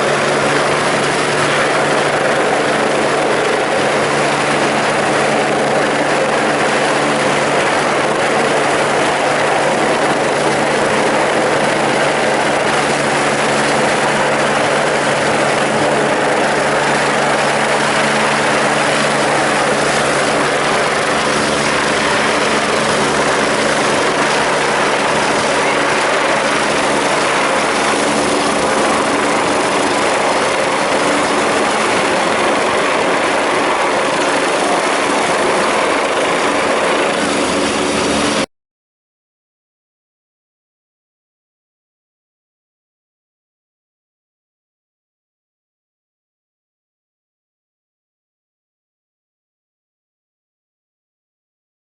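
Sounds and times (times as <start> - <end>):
helicopter turbines and rotor: 0.0 - 38.5.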